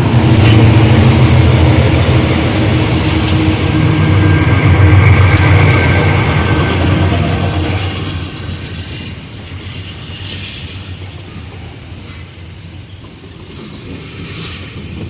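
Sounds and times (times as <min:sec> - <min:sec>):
train low rumble: 0:00.0 - 0:15.0
train wheels clattering on track: 0:00.0 - 0:15.0.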